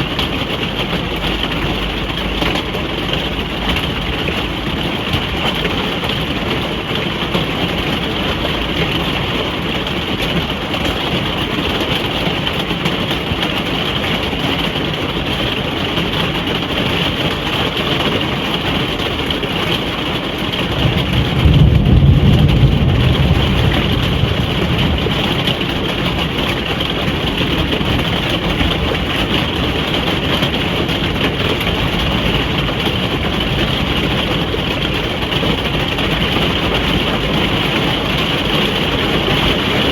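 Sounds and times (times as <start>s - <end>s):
rain on a caravan roof: 0.0s - 39.9s
low thunder rumble: 20.6s - 39.9s.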